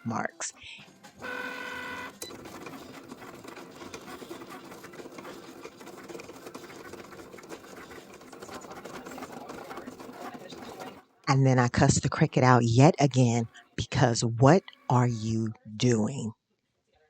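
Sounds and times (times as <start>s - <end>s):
cutting machine whirring: 1.0s - 11.2s.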